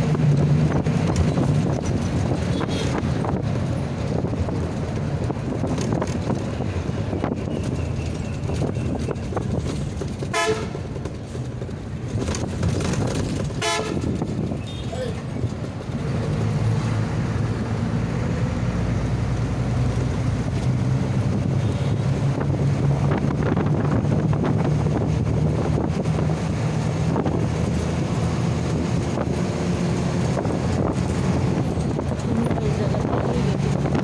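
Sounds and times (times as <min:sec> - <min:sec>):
wind on microphone: 0:20.1 - 0:34.0.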